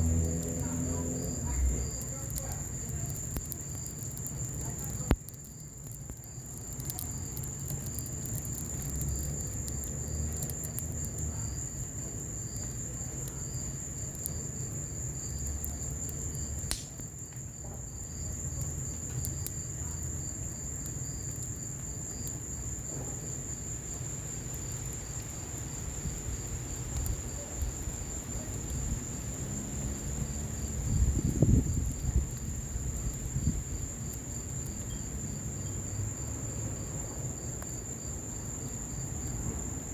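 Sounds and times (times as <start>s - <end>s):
low rumble: 0.0s - 2.1s
wood fire crackling and popping: 0.0s - 35.7s
crickets chirping: 0.0s - 39.9s.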